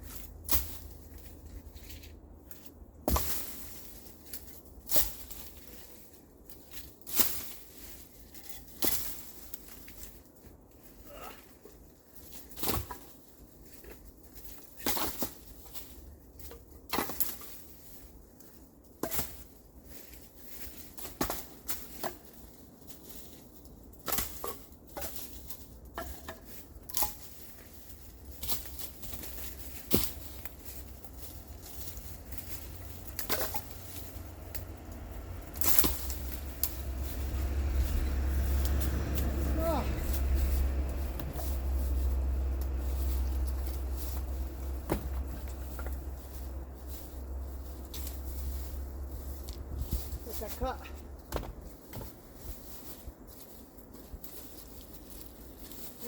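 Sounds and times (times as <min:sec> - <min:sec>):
low steady rumble: 0:00.0 - 0:06.5, 0:24.6 - 0:56.0.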